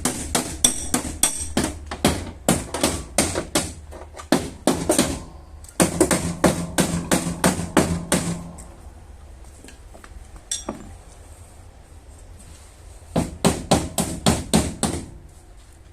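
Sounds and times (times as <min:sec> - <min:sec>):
hammer tapping on sheet metal: 0:00.0 - 0:08.7, 0:13.2 - 0:15.2.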